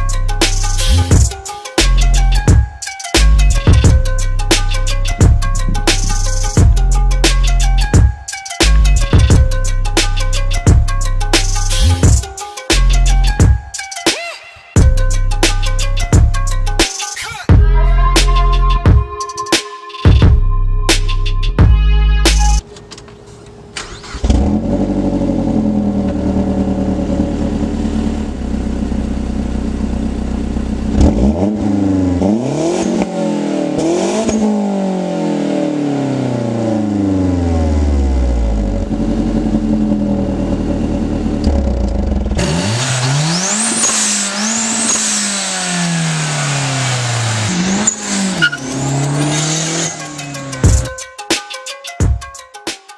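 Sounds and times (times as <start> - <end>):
car engine idling and revving: 3.2 - 13.5, 20.3 - 50.9.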